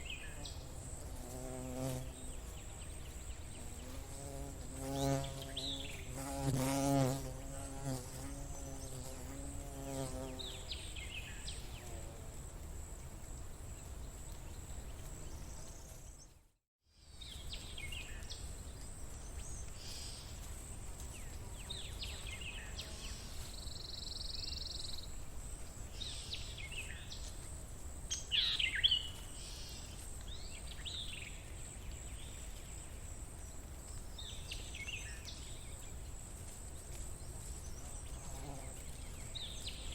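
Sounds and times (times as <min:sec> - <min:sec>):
flying insect buzzing: 0:00.1 - 0:11.1, 0:37.7 - 0:39.9.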